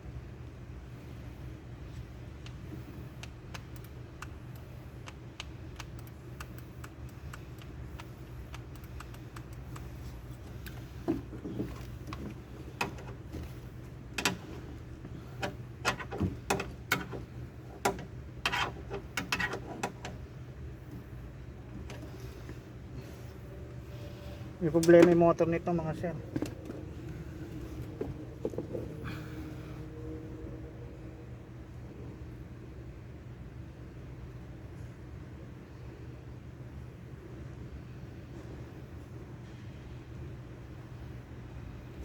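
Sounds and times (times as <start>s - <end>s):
steady low hum: 0.0s - 42.0s
light clicks: 3.2s - 9.9s.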